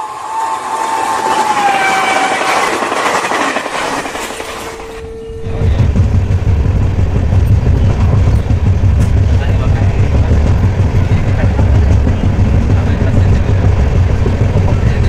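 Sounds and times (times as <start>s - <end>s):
train wheels clattering over rails: 0.9s - 15.0s
heavy low rumble: 4.8s - 15.0s.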